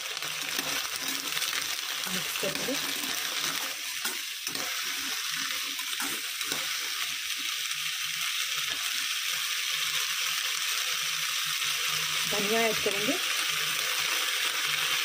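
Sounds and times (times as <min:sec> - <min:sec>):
peas sizzling in oil: 0:00.0 - 0:15.0
spoon stirring in pan: 0:00.2 - 0:09.9.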